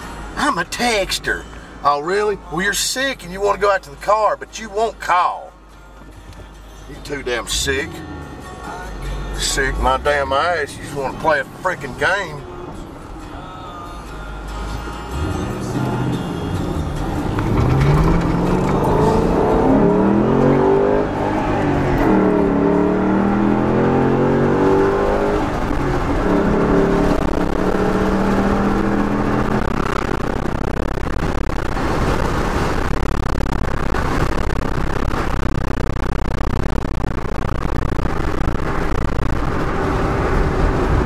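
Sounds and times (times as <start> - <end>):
car engine accelerating: 14.3 - 41.0.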